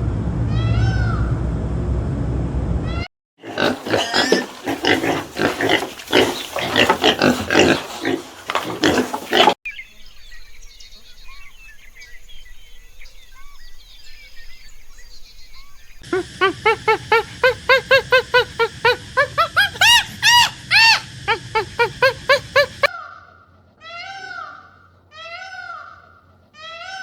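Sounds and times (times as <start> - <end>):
pigs grunting and squealing: 3.4 - 9.6, 16.0 - 22.9.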